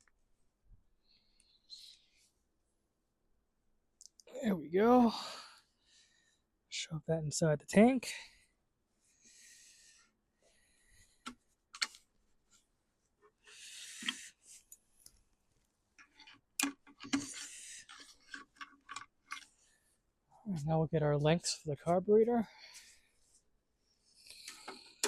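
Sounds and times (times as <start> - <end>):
hands handling plastic parts: 14.0 - 19.6.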